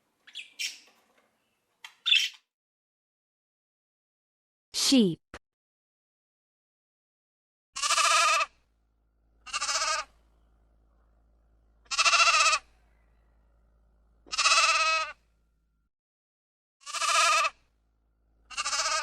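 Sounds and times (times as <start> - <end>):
sheep bleating: 7.8 - 8.5, 9.4 - 10.1, 11.9 - 12.7, 14.3 - 15.2, 16.8 - 17.6, 18.5 - 19.0.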